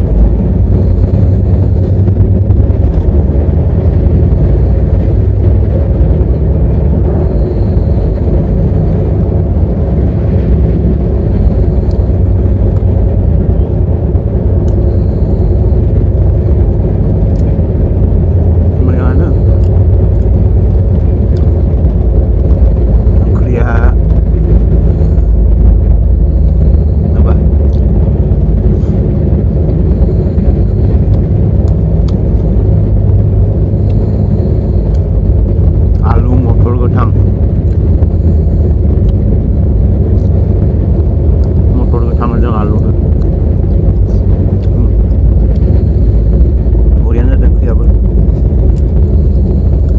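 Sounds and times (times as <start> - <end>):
passenger train rumbling on track: 0.0 - 49.9.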